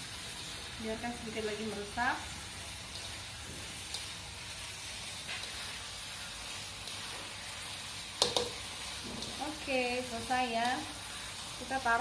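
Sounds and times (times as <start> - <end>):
food sizzling in a wok: 0.0 - 12.0
spatula scraping: 2.5 - 7.5, 8.2 - 10.0.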